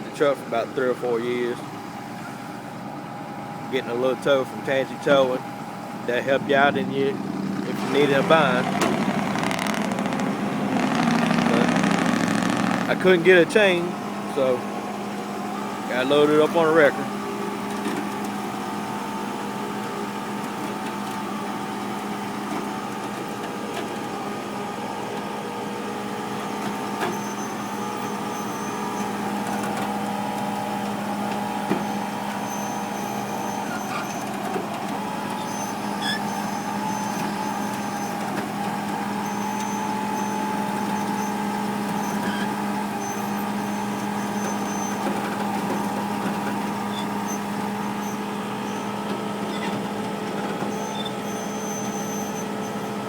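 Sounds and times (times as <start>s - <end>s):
truck engine humming: 0.1s - 53.0s.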